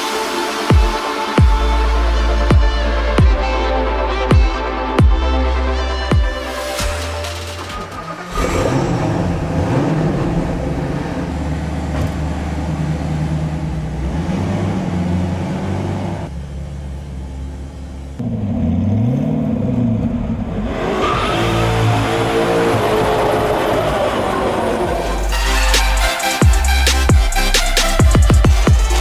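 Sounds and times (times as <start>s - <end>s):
car engine starting and revving: 6.6s - 29.0s.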